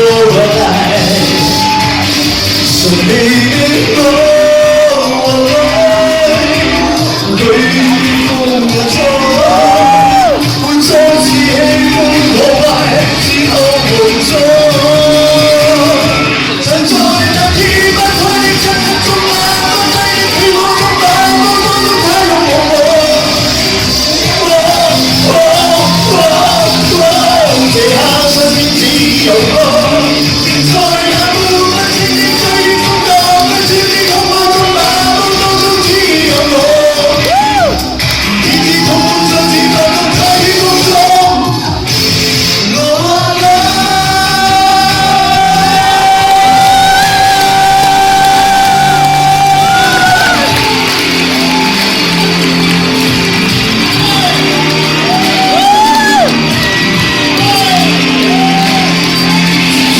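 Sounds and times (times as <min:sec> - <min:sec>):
backing music: 0:00.0 - 0:59.9
person singing: 0:00.0 - 0:59.9
pop-rock band playing: 0:00.0 - 0:59.9.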